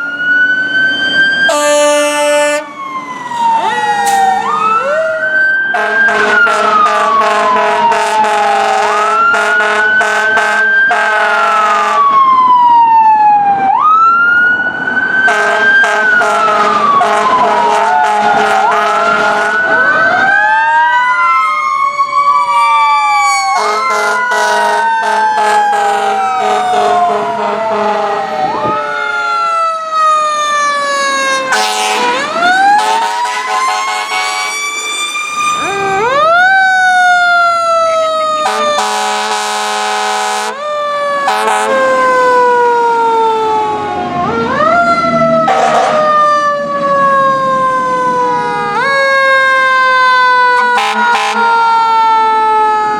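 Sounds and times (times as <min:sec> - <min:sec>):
fire truck sirens wailing: 0:00.0 - 0:52.9
air horn blasts: 0:01.5 - 0:02.7, 0:05.7 - 0:12.1, 0:15.3 - 0:19.8, 0:23.6 - 0:28.3, 0:31.5 - 0:35.0, 0:38.4 - 0:40.6, 0:41.2 - 0:41.9, 0:45.4 - 0:46.2, 0:50.6 - 0:51.6.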